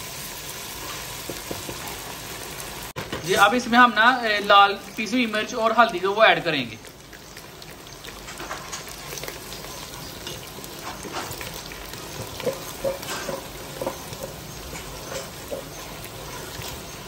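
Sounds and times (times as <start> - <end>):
onion sizzling in hot oil: 0.0 - 17.0
spatula scraping a pot: 8.3 - 17.0.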